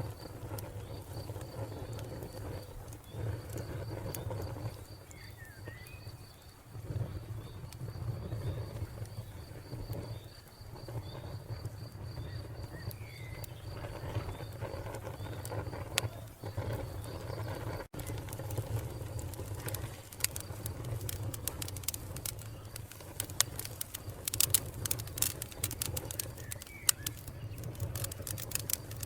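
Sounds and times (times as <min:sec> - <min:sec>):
wood fire crackling: 0:00.0 - 0:29.0
bird calls: 0:26.0 - 0:28.4.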